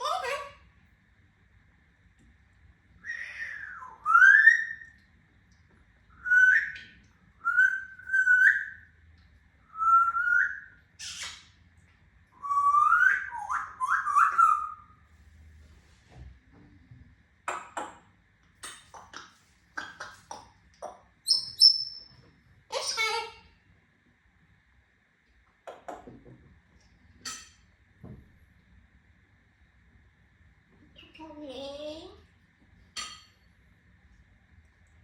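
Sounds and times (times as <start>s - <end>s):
parrot whistling: 3.0s - 5.0s, 6.1s - 8.9s, 9.7s - 11.5s, 12.4s - 15.0s, 21.2s - 22.1s
parrot clicks and chirps: 18.6s - 22.1s.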